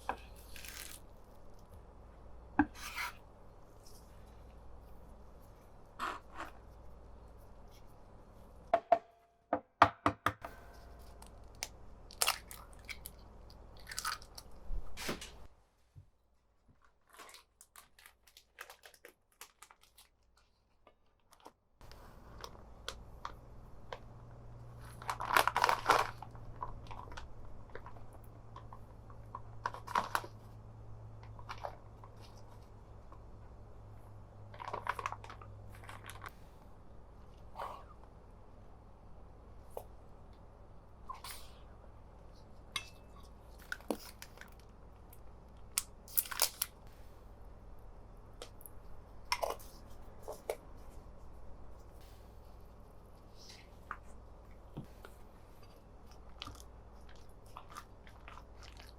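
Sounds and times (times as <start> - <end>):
low steady hum: 10.4 - 15.7, 21.8 - 58.9.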